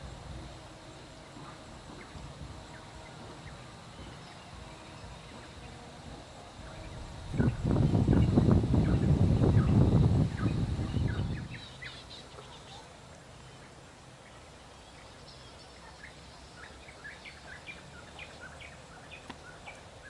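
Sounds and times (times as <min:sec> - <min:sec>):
small birds chirping: 0:00.8 - 0:20.0
loud low rumble: 0:05.0 - 0:11.6.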